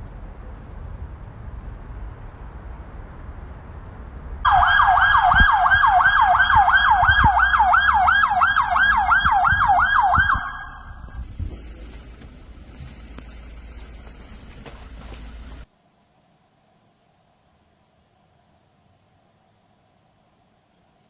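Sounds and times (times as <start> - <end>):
low vehicle rumble: 0.0 - 21.0
police siren yelping: 4.4 - 11.2.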